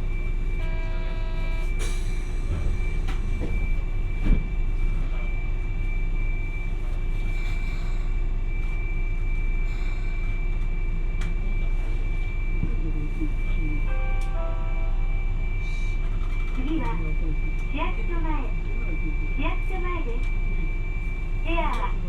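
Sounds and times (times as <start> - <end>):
tram motors and wheels rumbling: 0.0 - 22.0
high whine: 13.9 - 16.4.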